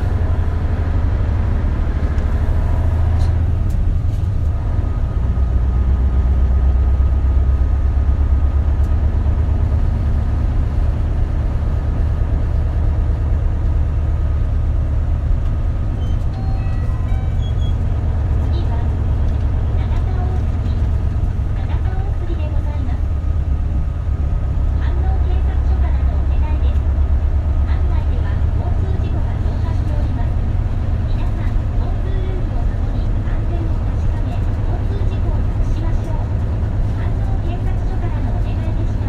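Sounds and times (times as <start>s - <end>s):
bus diesel engine drone: 0.0s - 39.0s
road noise: 0.0s - 39.0s.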